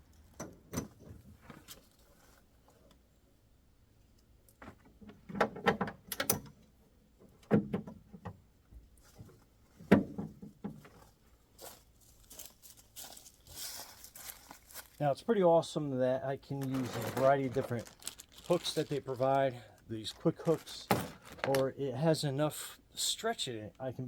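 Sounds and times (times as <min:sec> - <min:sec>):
rustling: 0:01.2 - 0:03.1, 0:10.8 - 0:15.0, 0:16.5 - 0:21.7.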